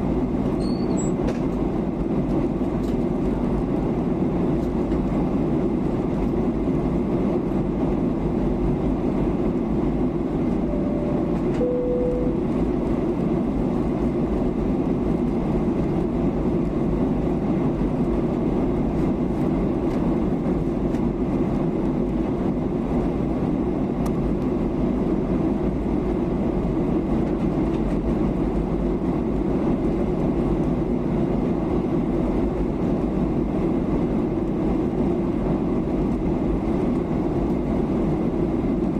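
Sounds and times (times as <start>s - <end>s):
airliner cabin roar: 0.0s - 38.9s
two-tone chime: 10.7s - 12.4s.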